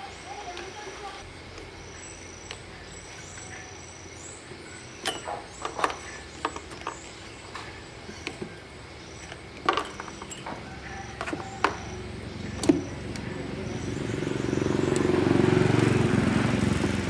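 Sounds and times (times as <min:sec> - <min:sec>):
faint steady background noise: 0:00.0 - 0:17.0
tools and parts clicking: 0:01.4 - 0:03.7, 0:04.4 - 0:13.9.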